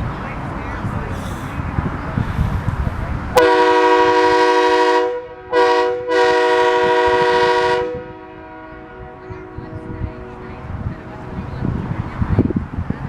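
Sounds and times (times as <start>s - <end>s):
multi-note air horn blasts: 3.4s - 10.4s.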